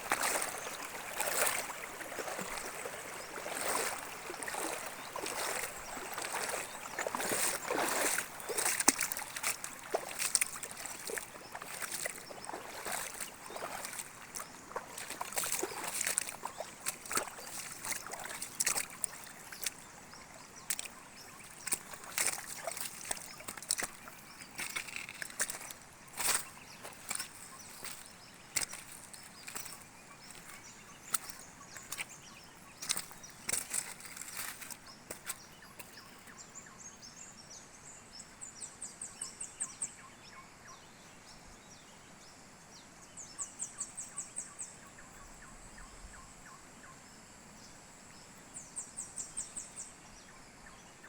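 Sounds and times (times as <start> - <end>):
small water splashes: 0.0 - 36.4
water sloshing and trickling: 0.0 - 36.4.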